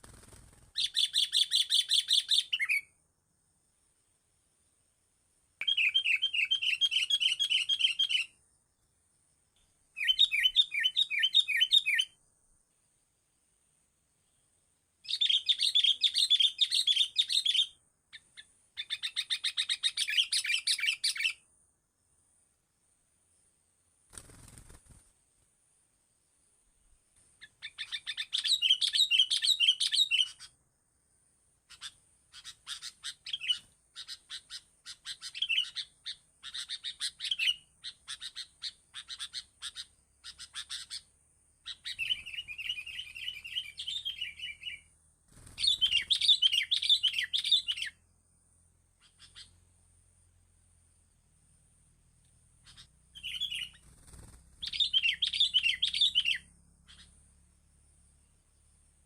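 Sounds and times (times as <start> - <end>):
buzzy bird trill: 0.0 - 2.9, 5.6 - 8.4, 10.0 - 12.2, 15.0 - 21.5, 27.4 - 30.5, 31.7 - 48.0, 49.0 - 49.6, 52.6 - 57.4
small songbird chirping: 0.0 - 25.1, 25.7 - 59.0.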